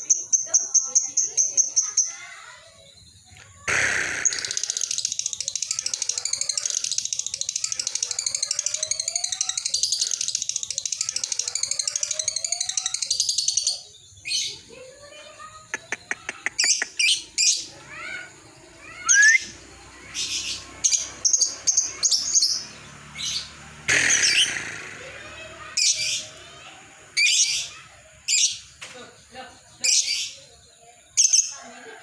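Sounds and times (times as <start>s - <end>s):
lovebirds chirping and squawking: 0.0s - 32.0s
brief rush of noise: 3.7s - 4.9s, 23.9s - 25.2s.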